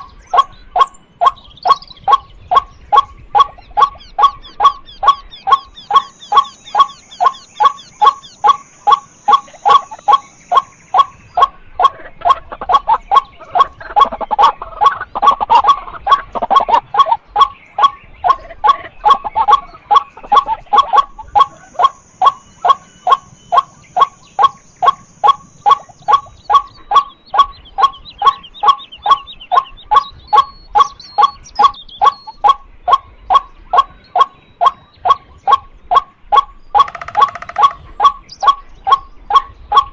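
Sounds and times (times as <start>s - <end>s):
faint high bird chirps: 0.0s - 39.9s
waterhen kwak calls: 0.0s - 39.9s.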